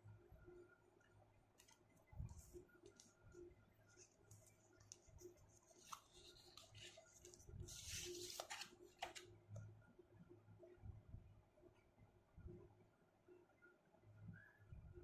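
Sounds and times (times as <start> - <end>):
low steady hum: 0.0 - 15.0
soft rustle: 1.6 - 9.2.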